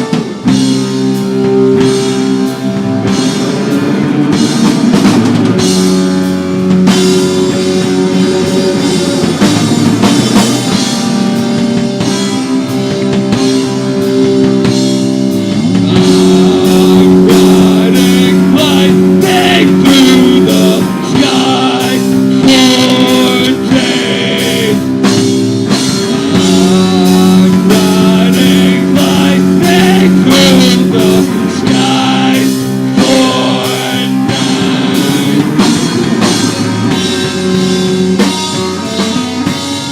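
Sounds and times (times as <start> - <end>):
distorted guitar chords: 0.0 - 39.9
drum kit: 0.0 - 39.9
person singing: 15.7 - 25.2, 26.1 - 36.2.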